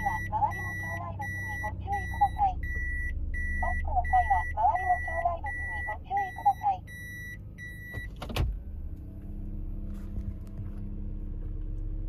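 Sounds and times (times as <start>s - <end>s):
reverse warning buzzer beeping: 0.0s - 8.2s.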